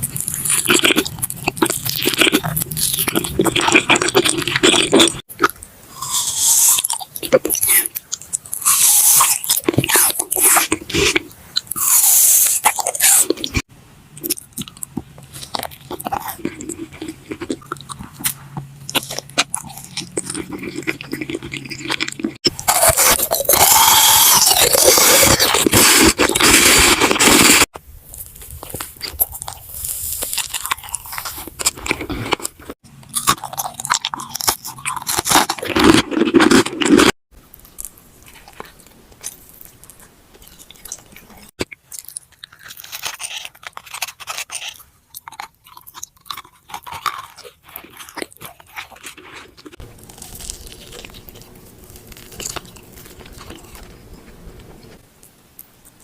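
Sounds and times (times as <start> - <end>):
crunchy bites and chewing: 0.0 - 56.0.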